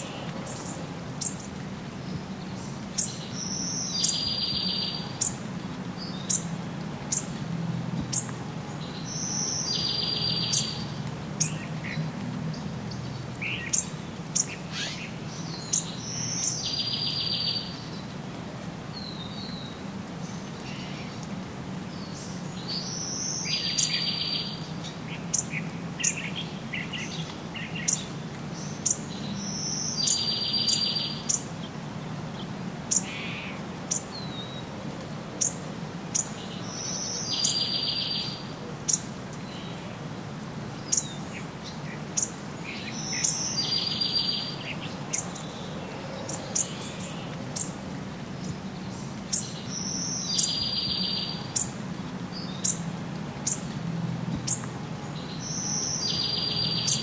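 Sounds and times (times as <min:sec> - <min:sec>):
low background noise: 0:00.0 - 0:57.0
bird song with buzzy trill: 0:55.3 - 0:57.0.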